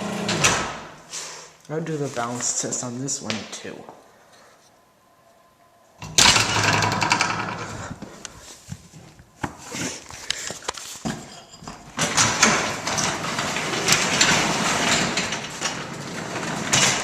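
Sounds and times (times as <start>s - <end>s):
garage door rolling and rattling: 0.0s - 1.0s, 6.0s - 8.3s, 11.0s - 17.0s.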